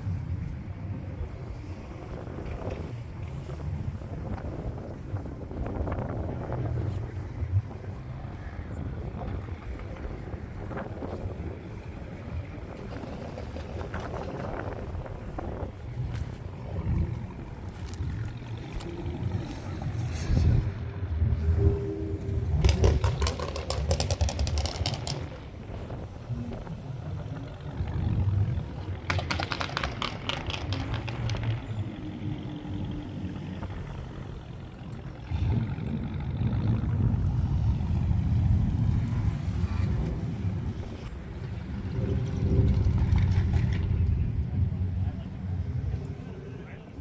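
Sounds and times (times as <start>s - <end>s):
car engines rumbling: 0.0s - 47.0s
rapid clicking clatter: 2.1s - 20.0s, 22.5s - 37.2s.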